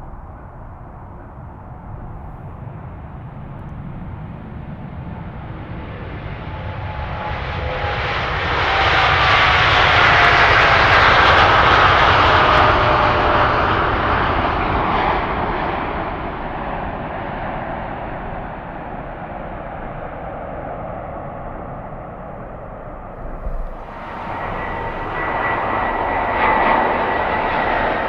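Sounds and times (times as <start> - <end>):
jet airliner passing by: 0.0 - 28.0.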